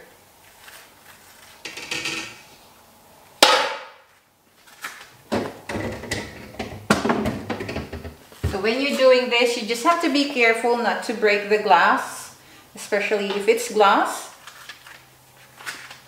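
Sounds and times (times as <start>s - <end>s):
refrigerator shelves knocking: 5.3s - 8.7s
shelves clattering and scraping: 5.3s - 9.2s.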